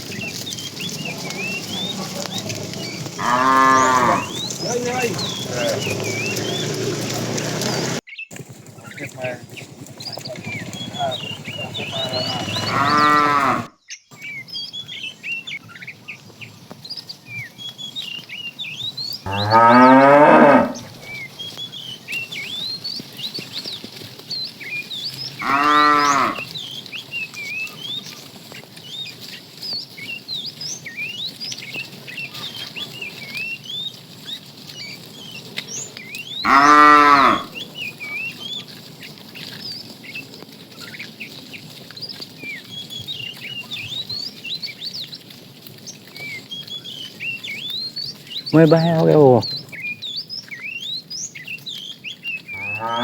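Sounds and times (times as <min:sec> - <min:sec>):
cattle mooing: 0:00.4 - 0:08.0, 0:10.4 - 0:13.7, 0:19.3 - 0:21.1, 0:25.4 - 0:26.5, 0:36.4 - 0:37.6, 0:52.6 - 0:53.0.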